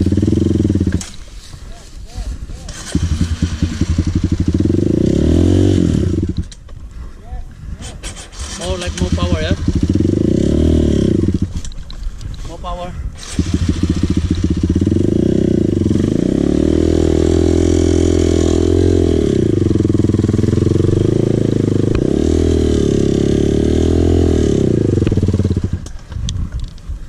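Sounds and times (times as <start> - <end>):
dirt bike engine revving: 0.0 - 1.2, 2.6 - 6.5, 8.0 - 11.7, 13.2 - 26.0.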